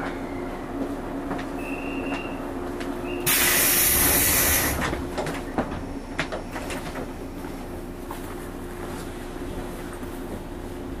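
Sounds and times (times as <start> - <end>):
electric train humming: 0.0 - 11.0
compressed air hiss: 3.3 - 4.8.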